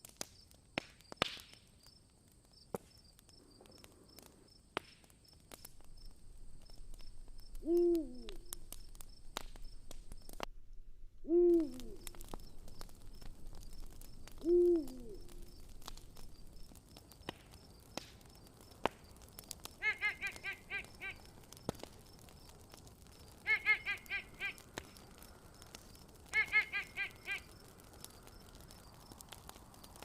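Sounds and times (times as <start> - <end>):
campfire crackling and popping: 0.0 - 30.0
owl hooting: 7.6 - 8.5, 11.2 - 12.3, 14.4 - 15.5, 19.8 - 21.3, 23.4 - 24.6, 26.3 - 27.5.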